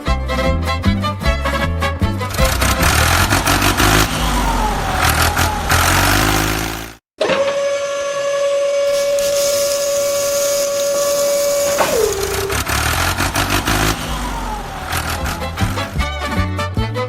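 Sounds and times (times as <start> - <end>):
whistle tone sliding down: 7.5 - 15.9.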